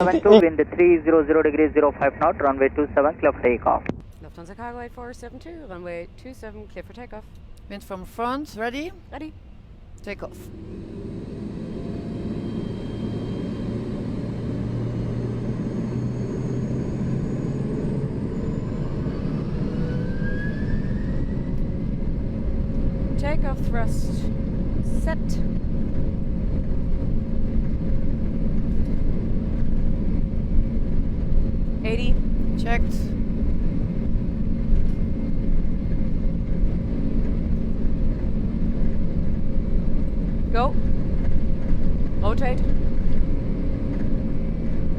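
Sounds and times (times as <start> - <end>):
faint steady hum: 0.0 - 14.0
jet engines spooling up: 10.2 - 44.9.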